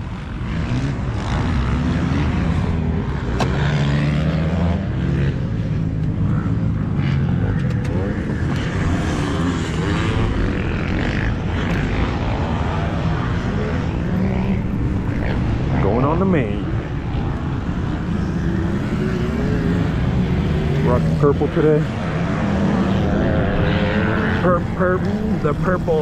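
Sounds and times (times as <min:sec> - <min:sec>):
dirt bike engines idling and revving: 0:00.0 - 0:26.0.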